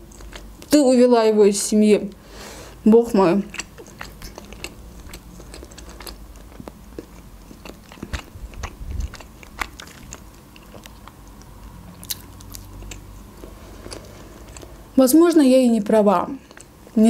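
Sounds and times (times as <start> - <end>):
crunchy bread being chewed: 0.0 - 0.8, 3.5 - 14.8, 16.3 - 17.0.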